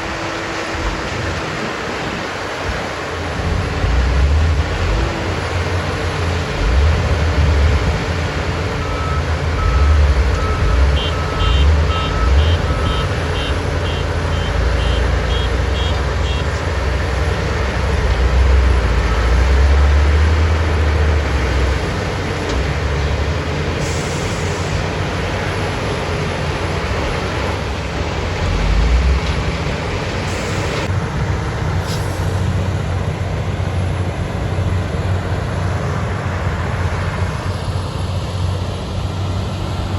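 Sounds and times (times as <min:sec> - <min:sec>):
heavy vehicle engine drone: 0:00.0 - 0:39.9
low reversing alarm beeps: 0:08.6 - 0:16.4
high fast reversing beeper: 0:08.8 - 0:16.4.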